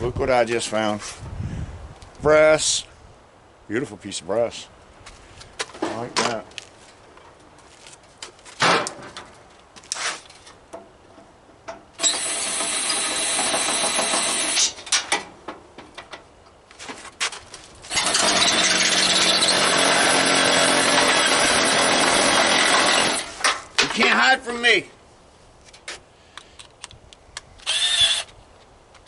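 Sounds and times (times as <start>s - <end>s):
power drill running: 12.0s - 14.8s, 17.9s - 23.3s, 27.6s - 28.3s.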